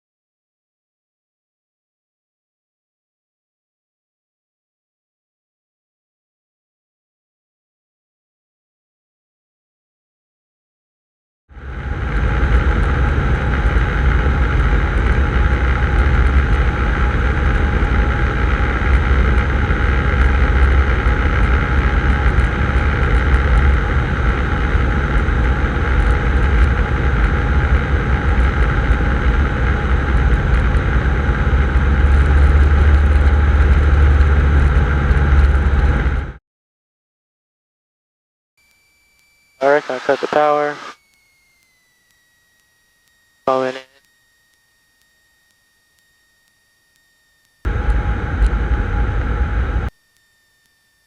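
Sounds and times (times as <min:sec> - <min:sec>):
airplane engine and propeller drone: 0:11.6 - 0:36.4, 0:39.6 - 0:44.3, 0:45.0 - 0:49.9.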